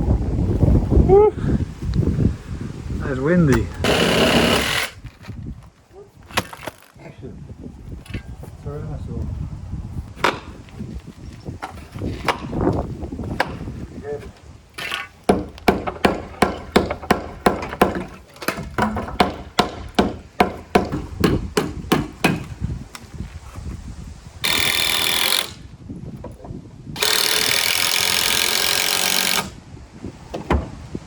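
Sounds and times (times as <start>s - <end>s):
hammer driving nails: 3.8s - 5.0s, 14.8s - 22.6s, 24.4s - 25.6s, 27.0s - 29.6s.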